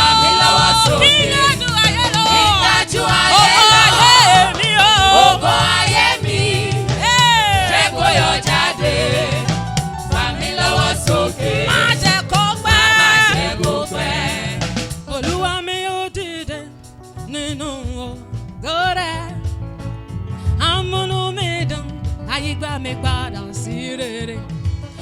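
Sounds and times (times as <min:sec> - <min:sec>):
singers and backing choir: 0:00.0 - 0:15.6
band with bass and drums: 0:00.0 - 0:25.0.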